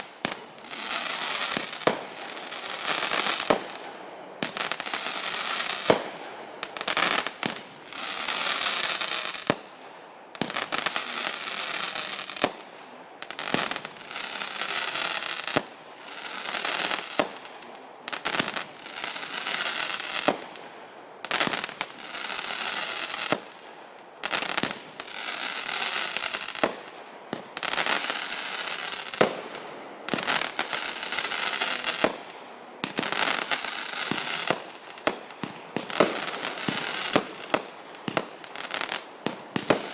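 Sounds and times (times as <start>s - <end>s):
fireworks hissing crackle: 0.0s - 39.9s
firework bangs: 24.2s - 39.9s.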